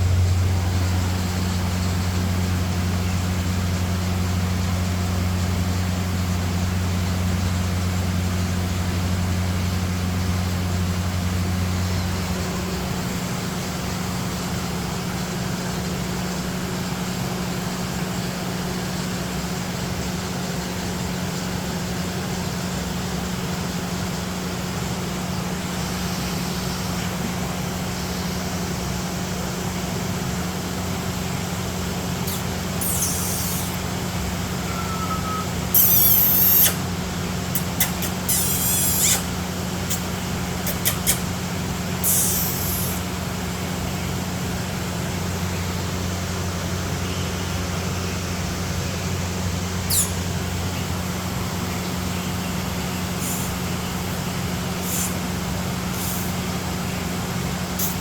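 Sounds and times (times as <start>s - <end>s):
low hum: 0.0s - 4.1s
high-pitched rasping bursts: 32.2s - 33.8s, 34.7s - 36.8s, 37.6s - 39.3s, 42.0s - 43.0s
constant hiss: 52.5s - 58.0s.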